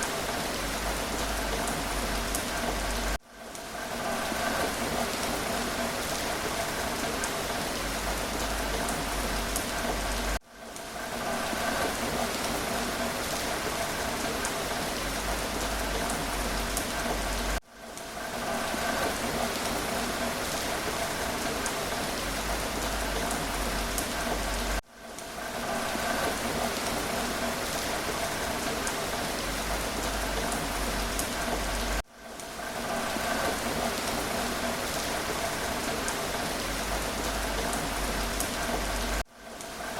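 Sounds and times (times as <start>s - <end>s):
rain falling: 0.0s - 39.9s
raindrop ticks: 18.8s - 39.9s.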